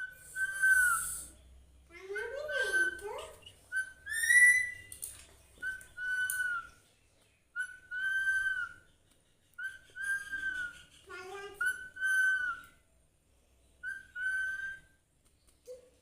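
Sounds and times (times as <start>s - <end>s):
parrot whistling: 0.0s - 1.3s, 2.1s - 5.0s, 5.6s - 6.7s, 7.6s - 8.8s, 9.6s - 10.9s, 11.6s - 12.8s, 13.8s - 15.0s.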